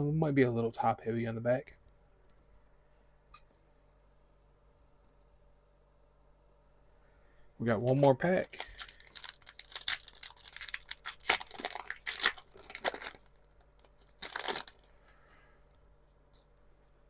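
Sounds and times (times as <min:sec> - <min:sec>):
foil wrapper tearing: 0:07.9 - 0:14.9.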